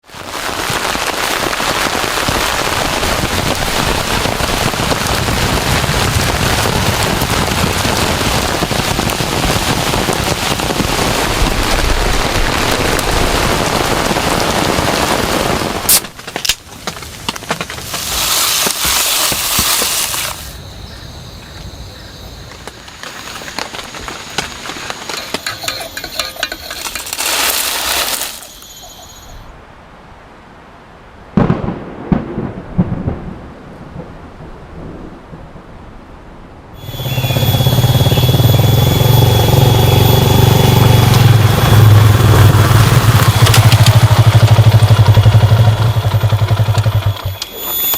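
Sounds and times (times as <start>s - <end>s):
heavy rain pouring: 0.0s - 20.7s, 22.4s - 28.8s, 36.8s - 47.9s
sharp crack: 0.5s - 20.6s.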